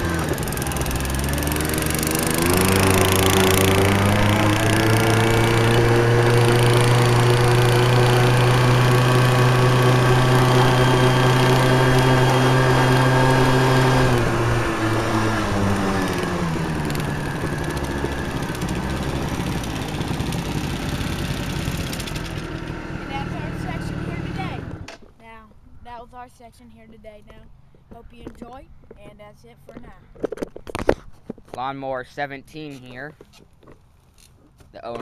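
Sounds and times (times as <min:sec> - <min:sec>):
off-road vehicle engine running: 0:00.0 - 0:25.0.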